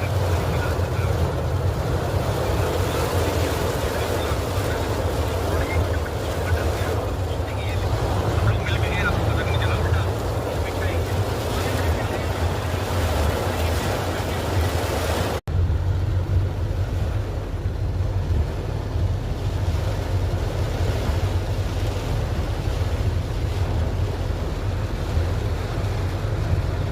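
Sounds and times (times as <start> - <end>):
heavy rain: 0.0 - 15.5
wind buffeting microphone: 0.0 - 26.9
low rumble: 15.5 - 26.9.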